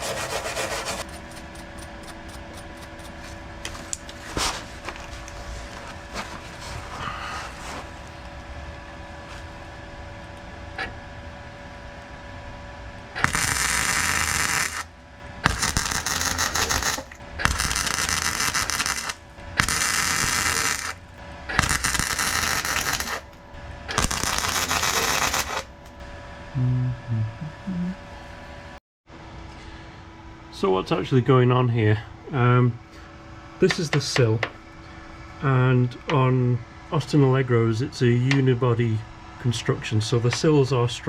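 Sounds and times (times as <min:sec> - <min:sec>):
welder crackling: 0:00.0 - 0:08.2, 0:13.2 - 0:25.9
faint steady hum: 0:00.0 - 0:41.0.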